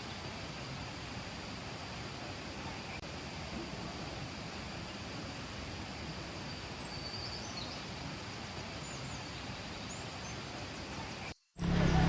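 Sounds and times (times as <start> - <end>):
river rushing: 0.0 - 12.0
faint bird chirps: 6.4 - 8.0.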